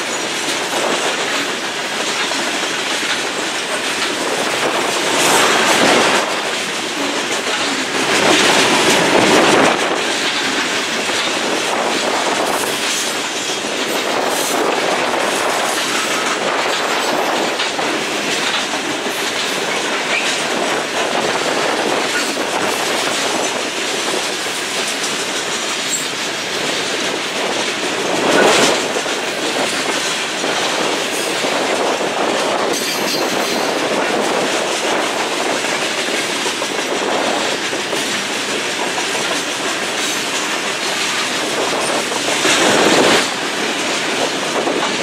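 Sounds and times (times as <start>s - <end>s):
steel wheels running on rails: 0.0s - 45.0s
wind on microphone: 0.0s - 45.0s.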